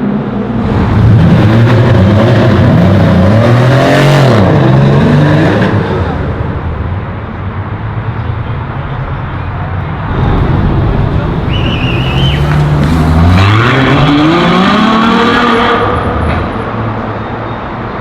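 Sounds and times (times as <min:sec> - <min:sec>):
car accelerating past: 0:10.1 - 0:16.2.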